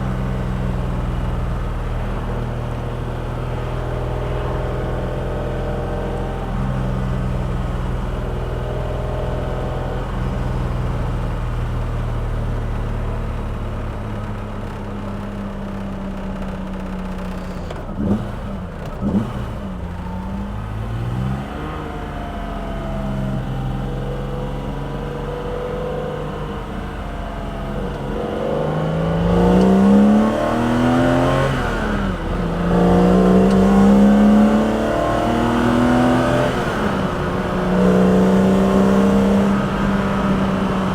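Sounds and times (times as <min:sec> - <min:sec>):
car engine revving: 0:17.1 - 0:40.9.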